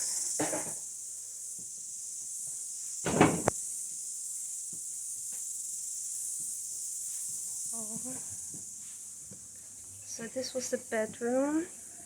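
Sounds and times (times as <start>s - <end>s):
high-pitched hiss: 0.0s - 12.0s
knock or clatter: 0.4s - 0.8s, 3.1s - 3.6s.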